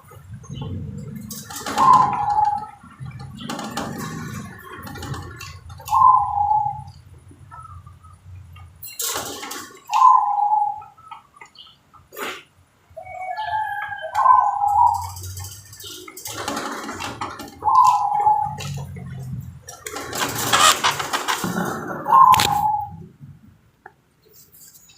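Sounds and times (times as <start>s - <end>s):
dove cooing: 0.3s - 7.9s, 9.9s - 11.1s, 13.0s - 19.4s, 20.0s - 23.1s.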